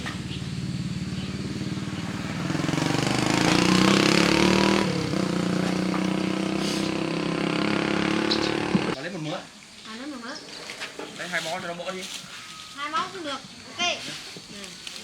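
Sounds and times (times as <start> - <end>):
motorbike engine running: 0.0 - 9.0.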